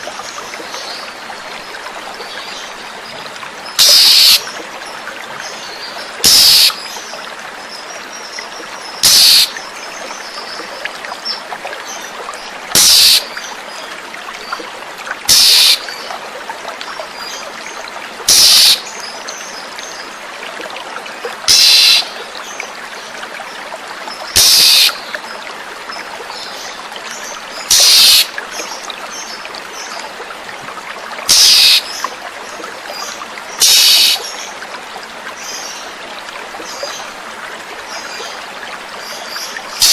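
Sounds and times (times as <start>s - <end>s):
running water: 0.0s - 39.9s
bird harsh rasping call: 3.8s - 4.4s, 6.3s - 6.8s, 9.0s - 9.5s, 12.8s - 13.3s, 15.3s - 15.8s, 18.3s - 18.8s, 21.5s - 22.1s, 24.4s - 25.0s, 27.7s - 28.3s, 31.3s - 31.8s, 33.6s - 34.2s.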